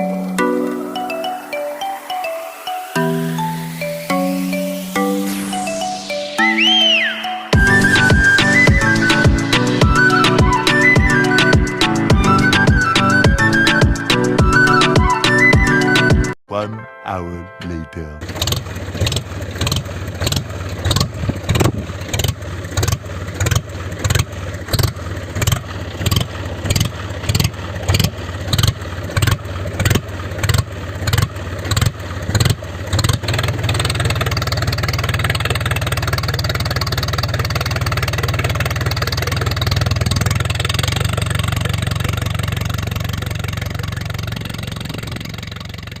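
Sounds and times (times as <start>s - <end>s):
tractor engine chugging: 7.5s - 16.1s, 18.2s - 46.0s.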